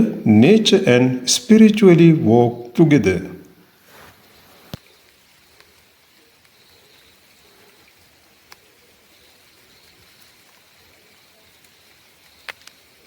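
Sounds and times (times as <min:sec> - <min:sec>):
steady hiss: 0:00.0 - 0:13.0
click: 0:12.4 - 0:12.8.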